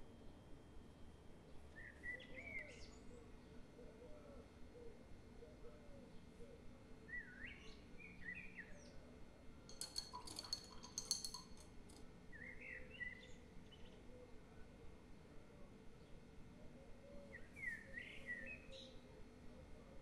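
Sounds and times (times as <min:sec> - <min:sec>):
small birds chirping: 0:17.0 - 0:19.0.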